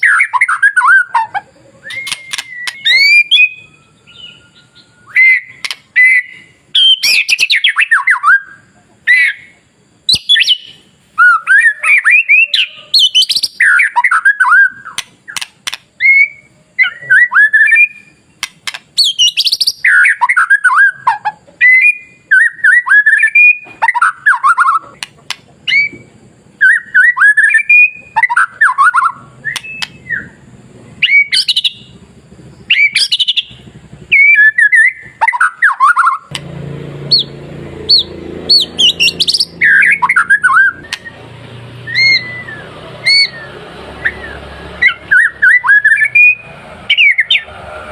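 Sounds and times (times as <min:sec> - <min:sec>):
bird singing whistled phrases: 0:00.0 - 0:25.0, 0:25.6 - 0:32.0, 0:32.6 - 0:36.3, 0:37.1 - 0:47.5
short sharp bird calls: 0:00.0 - 0:36.4, 0:37.1 - 0:47.9
low background rumble: 0:29.1 - 0:35.2.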